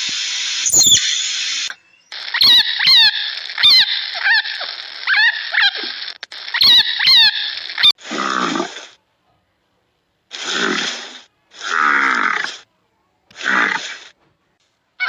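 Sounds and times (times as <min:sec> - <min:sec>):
animal squeaky calls: 0:00.6 - 0:05.9, 0:06.5 - 0:07.9.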